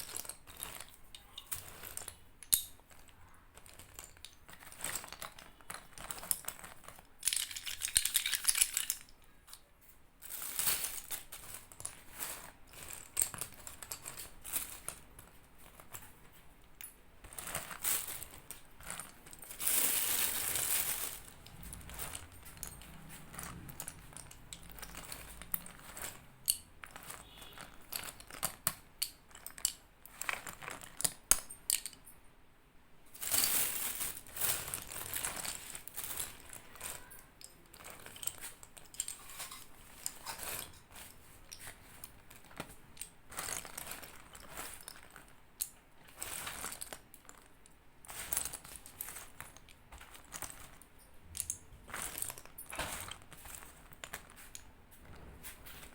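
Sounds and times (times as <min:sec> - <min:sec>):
slate pencils snapping and crunching: 0:00.0 - 0:09.6, 0:16.7 - 0:32.0, 0:33.3 - 0:55.9.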